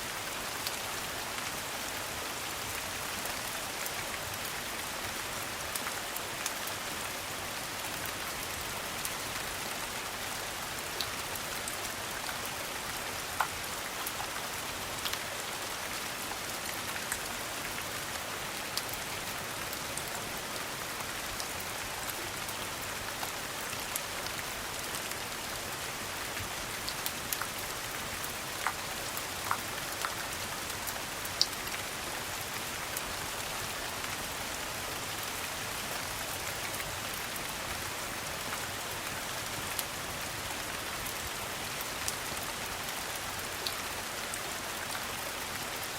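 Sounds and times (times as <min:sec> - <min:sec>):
rain falling: 0:00.0 - 0:45.9.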